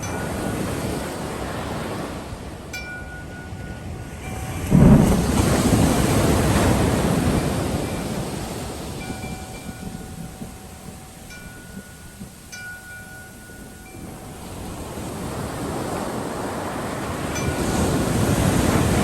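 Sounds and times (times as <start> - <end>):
sea wave breaking: 0.0 - 12.0, 13.2 - 19.0
wind chimes ringing: 0.0 - 16.3, 17.2 - 19.0.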